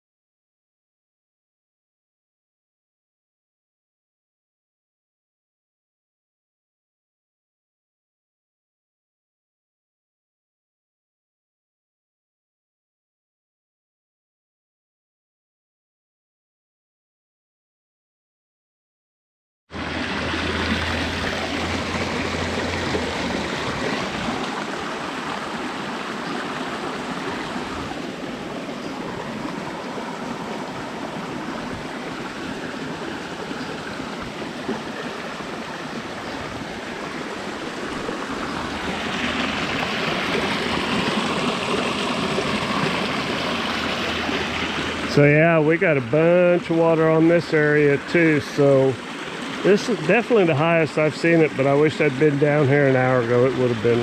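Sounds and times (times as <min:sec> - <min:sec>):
floodwater rushing down stream: 0:19.7 - 0:54.0.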